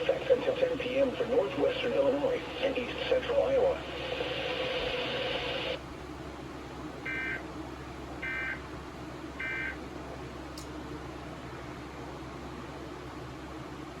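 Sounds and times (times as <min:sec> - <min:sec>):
receiver hiss: 0:00.0 - 0:05.8.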